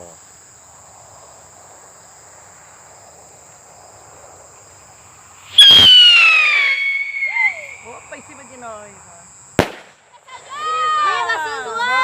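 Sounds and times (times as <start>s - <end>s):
crickets chirping: 0.0s - 12.0s
skyrocket bang and falling whistle: 5.5s - 7.8s.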